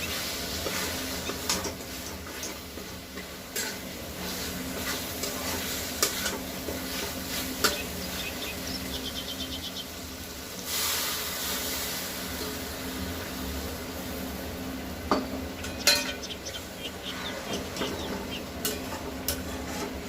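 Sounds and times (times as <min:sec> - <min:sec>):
food frying in a pan: 0:00.0 - 0:20.0
loud sizzle: 0:00.0 - 0:20.0
spatula stirring: 0:17.5 - 0:20.0.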